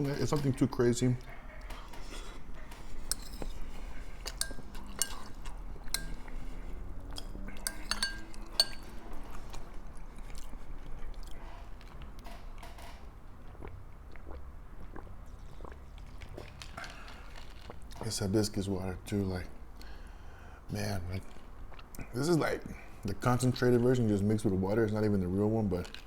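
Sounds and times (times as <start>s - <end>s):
chewing: 1.2s - 12.1s, 13.4s - 18.0s, 21.2s - 22.1s
spoon clinking against bowl: 3.0s - 6.4s, 7.2s - 9.0s.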